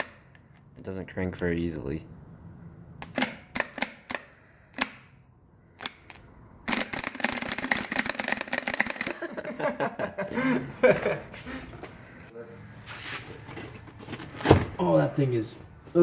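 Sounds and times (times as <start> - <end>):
ratchet wrench clicking: 5.8 - 9.2.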